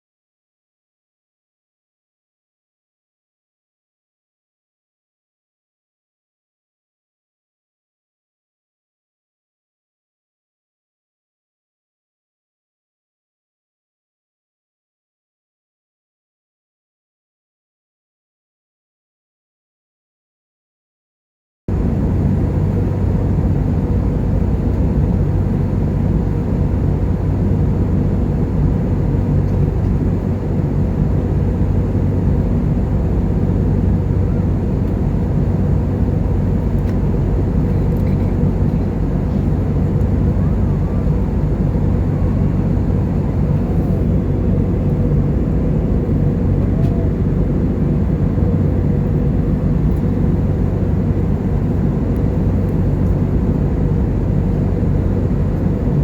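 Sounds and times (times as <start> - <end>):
airliner cabin engine drone: 21.7 - 56.0.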